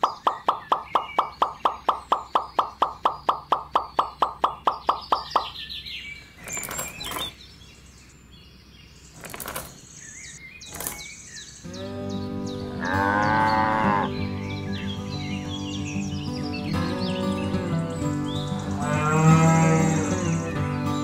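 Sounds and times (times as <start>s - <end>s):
birds chirping: 0.0s - 21.0s
pebbles rattling: 9.2s - 10.0s
background music: 11.7s - 21.0s.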